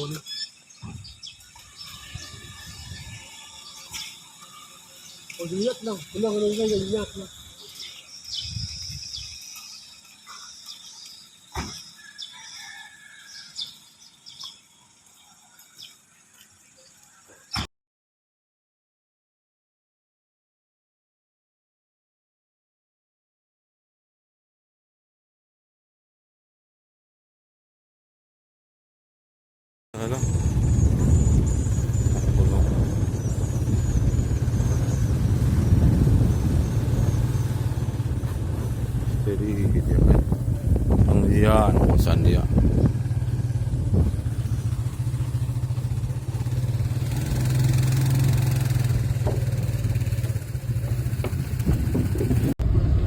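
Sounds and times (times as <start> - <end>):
birds chirping: 0.0 - 17.7, 30.0 - 52.6
high insect buzz: 0.2 - 17.6
faint high chirping: 30.0 - 38.7
low rumble of moving vehicle: 30.0 - 53.0.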